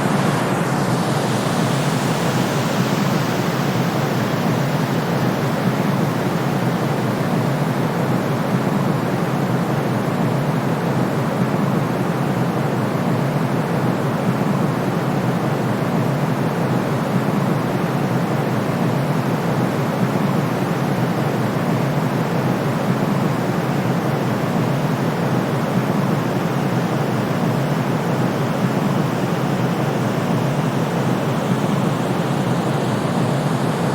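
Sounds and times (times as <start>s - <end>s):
low rushing white noise: 0.0s - 7.1s, 21.0s - 33.9s.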